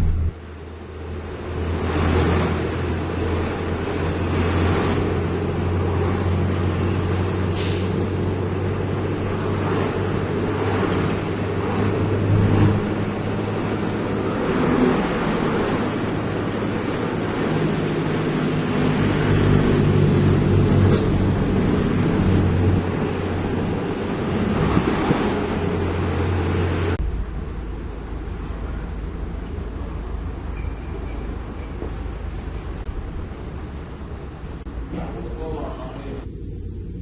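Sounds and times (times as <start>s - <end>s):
wind noise on microphone: 0.0s - 0.4s
diesel engine humming: 0.0s - 37.0s.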